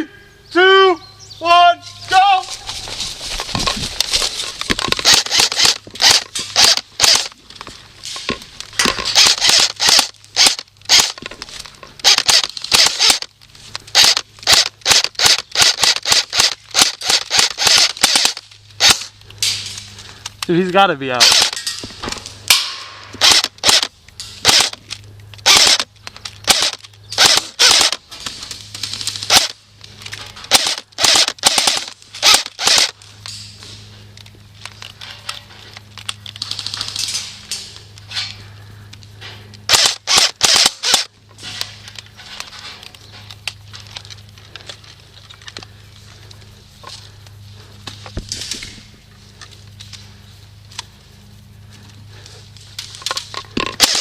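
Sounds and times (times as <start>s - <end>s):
steady low hum: 0.0s - 54.0s
airsoft guns firing: 4.8s - 7.3s, 8.8s - 11.2s, 12.0s - 13.3s, 13.9s - 19.8s, 21.2s - 21.7s, 22.5s - 24.8s, 25.4s - 28.0s, 29.1s - 29.6s, 30.5s - 33.0s, 39.7s - 41.1s, 53.8s - 54.0s.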